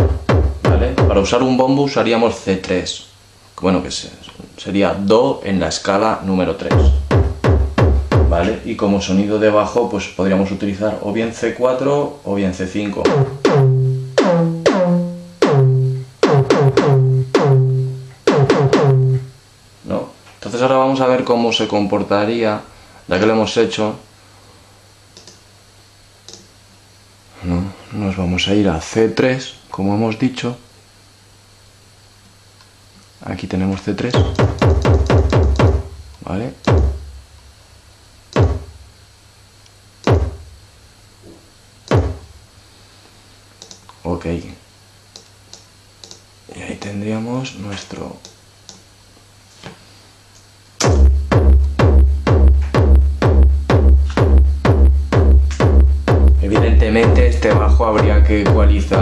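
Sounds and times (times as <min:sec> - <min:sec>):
synthesized distorted kick-drum bass: 0:00.0 - 0:01.4, 0:06.7 - 0:08.6, 0:13.0 - 0:19.4, 0:34.2 - 0:36.1, 0:36.7 - 0:37.3, 0:38.4 - 0:38.9, 0:40.0 - 0:40.6, 0:41.9 - 0:42.4, 0:50.8 - 0:59.0.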